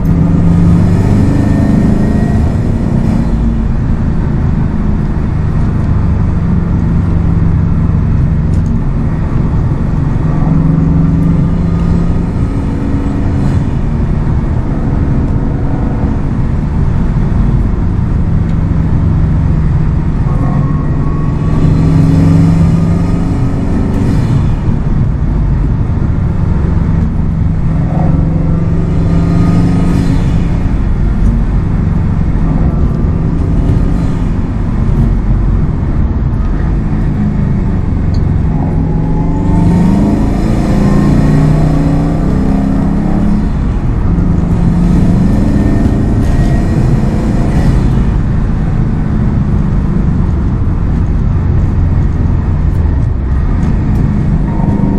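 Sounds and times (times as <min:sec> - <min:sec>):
car engine revving: 0:00.0 - 0:54.9
road and tyre noise: 0:00.0 - 0:54.9.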